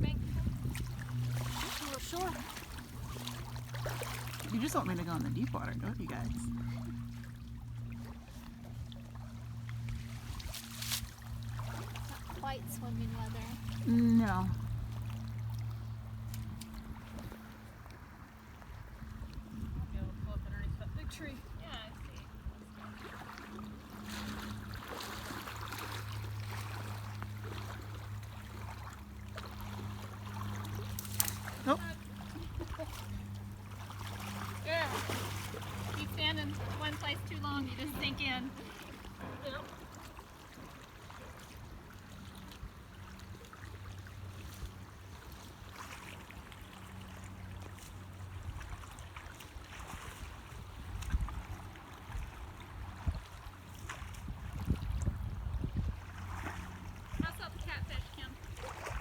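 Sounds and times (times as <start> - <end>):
steady low hum: 0.0 - 42.1
water sloshing and splashing: 0.0 - 59.0.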